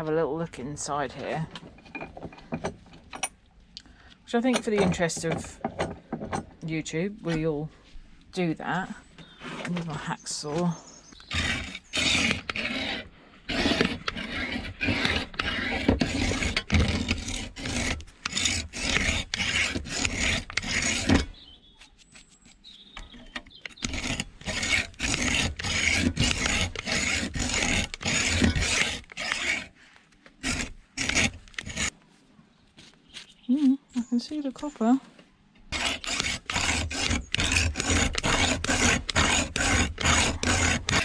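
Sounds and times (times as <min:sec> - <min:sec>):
hacksaw sawing: 0:11.2 - 0:21.3, 0:22.4 - 0:31.9, 0:35.7 - 0:41.0.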